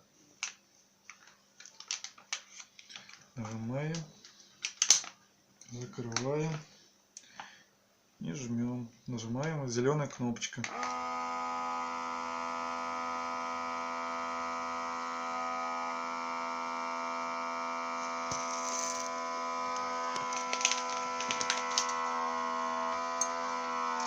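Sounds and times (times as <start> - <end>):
vacuum sealer pump humming: 10.7 - 24.0.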